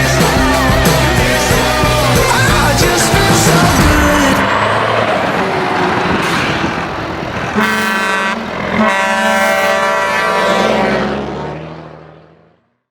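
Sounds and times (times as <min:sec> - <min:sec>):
truck engine: 0:00.0 - 0:12.9
truck horn blasts: 0:07.5 - 0:11.4.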